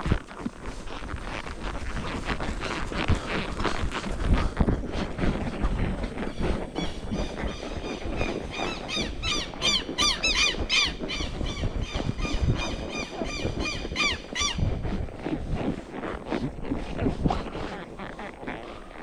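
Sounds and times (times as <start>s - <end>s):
bird calling harsh notes: 6.8s - 14.6s.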